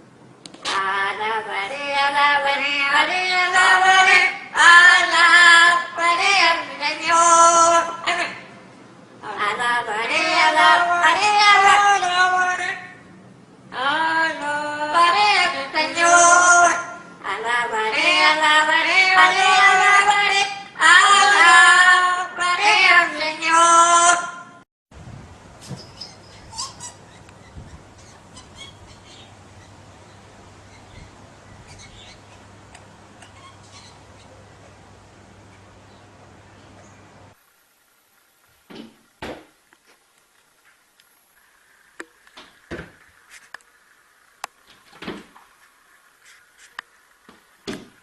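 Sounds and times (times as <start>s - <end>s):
high voice singing: 0.6s - 8.6s, 9.2s - 13.1s, 13.7s - 24.6s.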